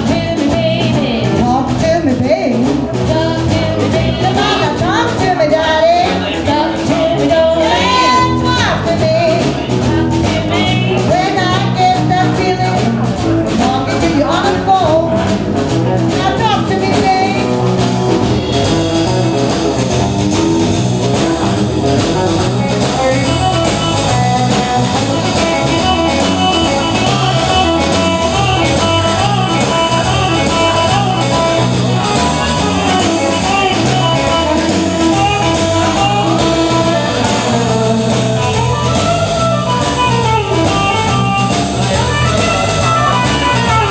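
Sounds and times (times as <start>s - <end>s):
guitar: 0.0s - 43.9s
live band playing blues: 0.0s - 43.9s.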